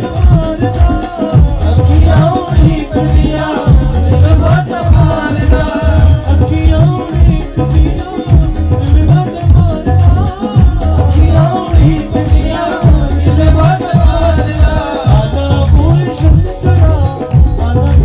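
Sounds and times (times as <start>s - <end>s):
hand drum beat: 0.0s - 18.0s
rattle percussion: 0.0s - 18.0s.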